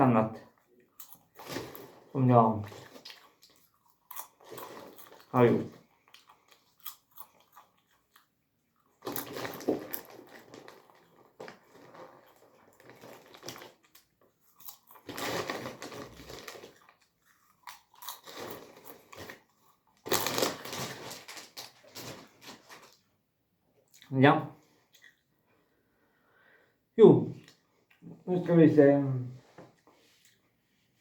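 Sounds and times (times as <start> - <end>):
crunching and crinkling: 0.4 - 23.2.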